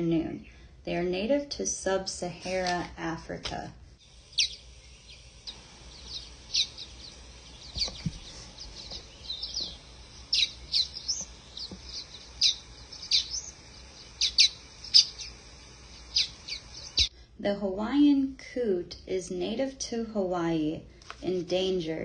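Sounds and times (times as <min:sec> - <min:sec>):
birds chirping: 0:04.0 - 0:17.1.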